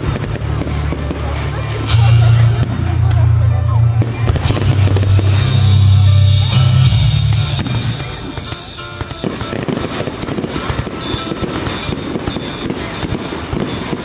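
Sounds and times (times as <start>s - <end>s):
strong low bass: 0.0s - 8.5s
fireworks crackling and popping: 0.0s - 14.0s
loud music: 0.0s - 14.0s.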